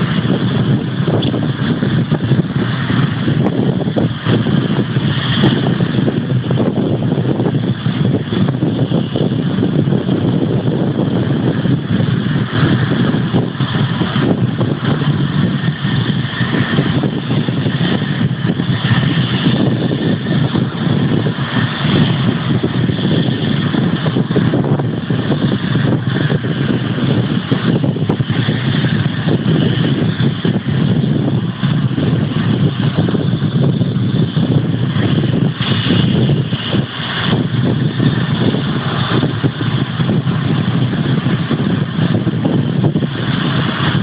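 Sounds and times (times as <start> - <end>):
jet engines rumbling: 0.0 - 44.0.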